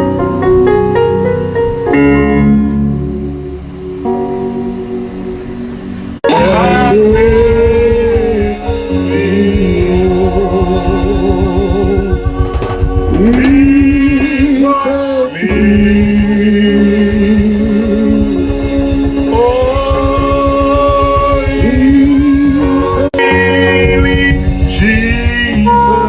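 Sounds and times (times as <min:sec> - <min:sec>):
band accompaniment: 0:00.0 - 0:26.0
person singing with vibrato: 0:06.2 - 0:26.0.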